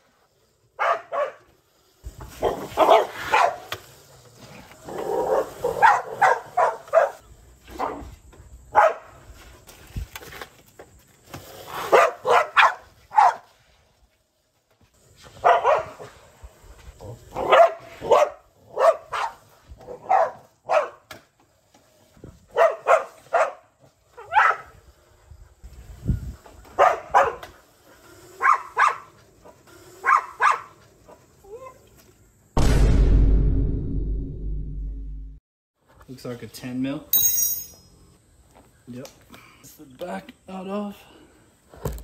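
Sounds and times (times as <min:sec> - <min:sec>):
dog barking: 0:00.8 - 0:01.5, 0:02.4 - 0:03.7, 0:05.3 - 0:07.2, 0:08.7 - 0:09.1, 0:11.9 - 0:13.5, 0:15.4 - 0:16.1, 0:17.4 - 0:21.0, 0:22.5 - 0:24.7, 0:26.8 - 0:27.4, 0:28.4 - 0:29.1, 0:30.0 - 0:30.8.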